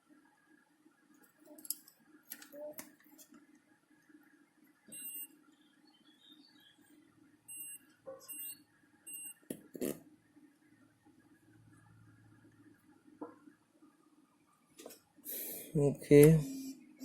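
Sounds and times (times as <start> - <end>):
multimeter short high beeps: 4.9 - 5.3, 7.5 - 9.4.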